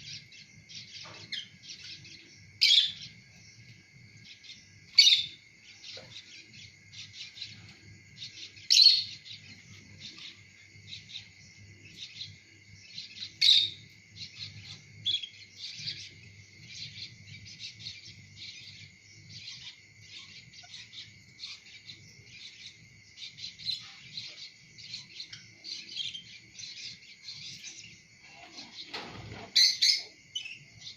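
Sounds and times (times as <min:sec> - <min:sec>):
lovebirds chirping and chattering: 0:00.0 - 0:30.9
sharp bird calls: 0:00.0 - 0:30.9.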